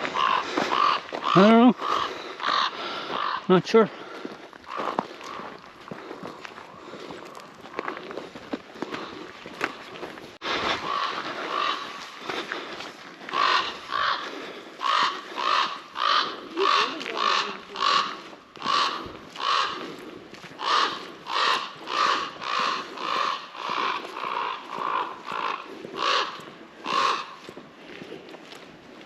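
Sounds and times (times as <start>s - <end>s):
crunching footsteps: 0.0s - 29.0s.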